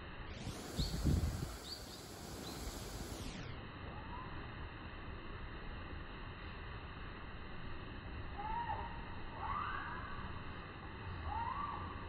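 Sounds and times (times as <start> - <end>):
bird chirping: 0.4 - 3.4.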